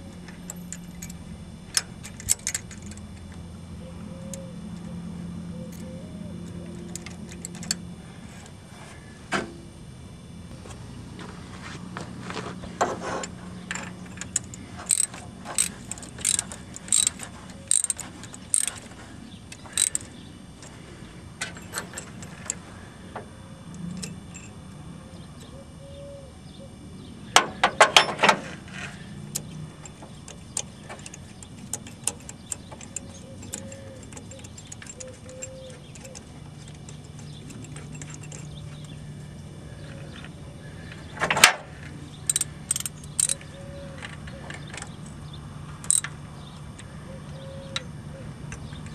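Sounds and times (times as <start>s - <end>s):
ratchet wrench clicking: 0.4s - 3.0s, 13.7s - 18.9s, 19.5s - 20.7s, 29.3s - 38.9s, 42.2s - 45.0s, 45.8s - 46.2s.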